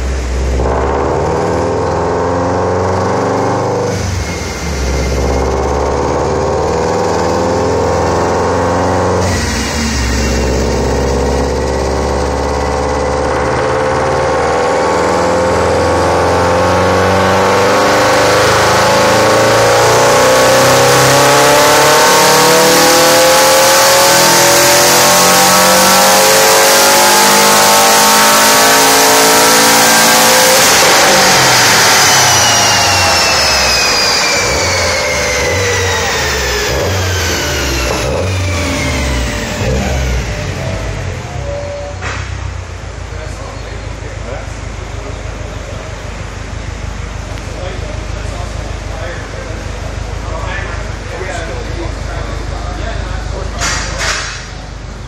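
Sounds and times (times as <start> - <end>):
drivetrain falling whine: 0.0 - 19.8, 24.1 - 43.0
car engine revving: 0.0 - 55.0.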